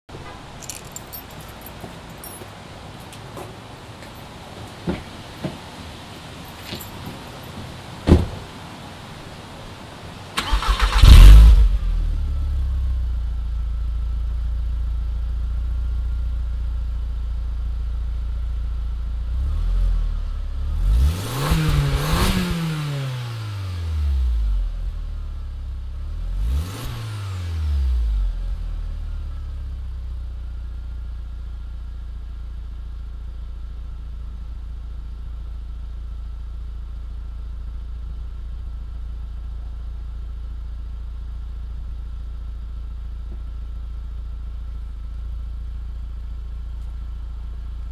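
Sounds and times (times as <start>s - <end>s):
car engine starting and revving: 10.3s - 16.3s, 19.1s - 29.9s.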